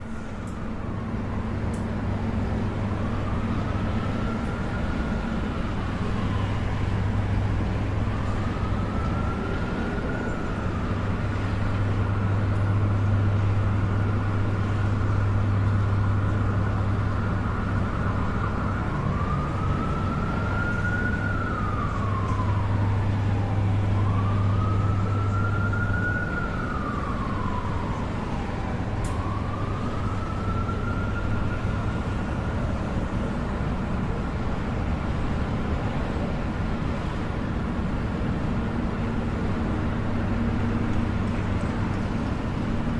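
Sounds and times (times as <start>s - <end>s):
city traffic rumble: 0.0s - 42.9s
emergency vehicle siren wailing: 0.0s - 42.9s.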